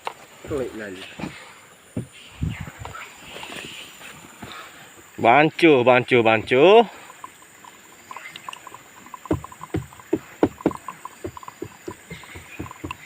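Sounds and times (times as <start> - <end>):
stick knocking against container: 7.1 - 13.0.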